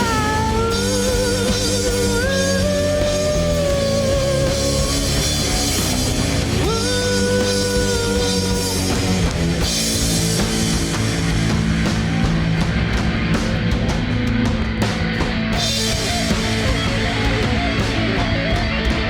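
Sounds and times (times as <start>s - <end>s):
distorted rock band playing: 0.0s - 19.0s
electric guitar lead notes: 12.9s - 19.0s.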